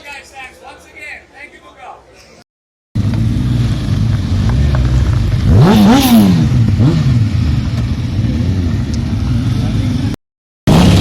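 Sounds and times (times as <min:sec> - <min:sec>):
motorcycle engine idling and revving: 0:03.0 - 0:11.0.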